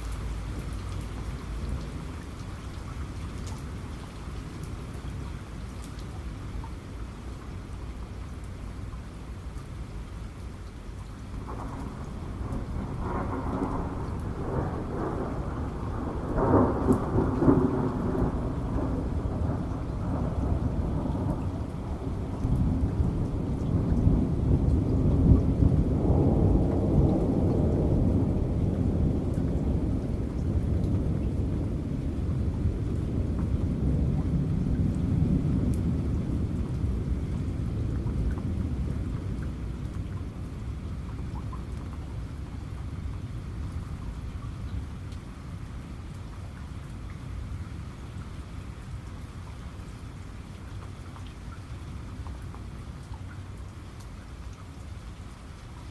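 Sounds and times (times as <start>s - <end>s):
heavy rain: 0.0s - 55.9s
raindrop ticks: 0.0s - 55.9s
thunder rumbling: 11.4s - 44.3s.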